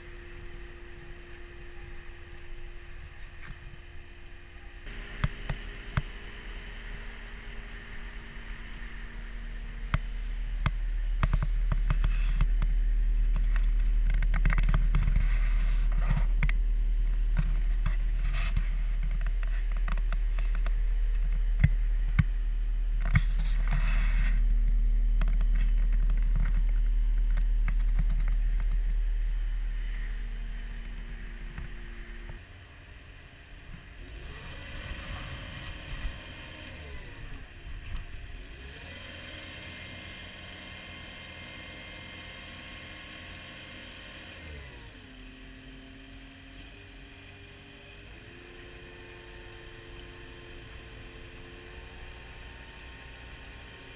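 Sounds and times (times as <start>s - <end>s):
whine rising and falling in pitch: 0.0s - 32.5s
diesel loader engine drone: 0.0s - 53.9s.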